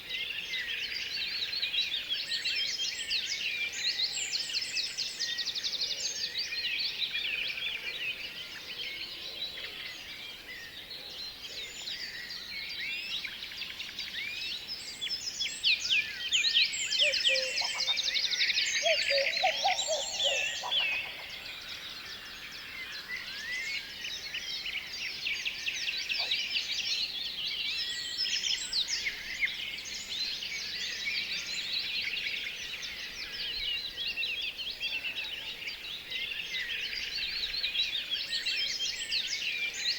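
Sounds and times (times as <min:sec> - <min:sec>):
songbirds chirping: 0:00.0 - 0:39.9
lower-pitched bird calls: 0:17.0 - 0:18.2, 0:18.8 - 0:21.4.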